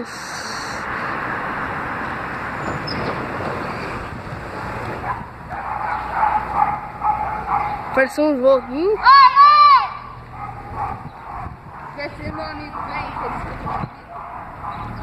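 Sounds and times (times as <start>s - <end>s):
wind on microphone: 2.6s - 8.0s, 10.1s - 15.0s.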